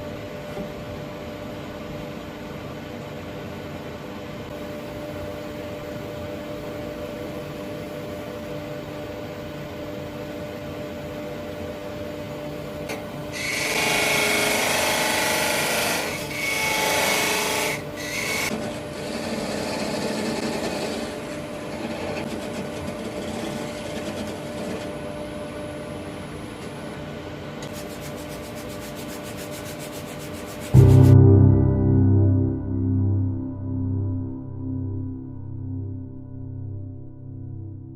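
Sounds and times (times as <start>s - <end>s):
wood lathe running: 16.5s - 21.1s
tool scraping spinning wood: 18.5s - 24.9s, 27.7s - 30.7s.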